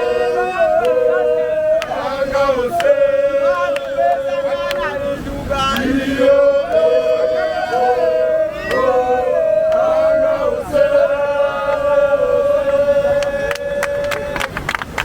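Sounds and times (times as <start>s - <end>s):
group of voices chanting: 0.0s - 14.6s.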